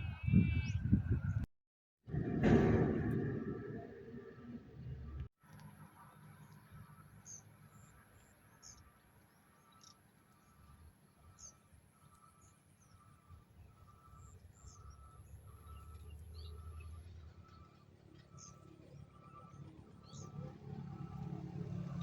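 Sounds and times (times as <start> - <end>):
low rumble: 2.1 - 5.3.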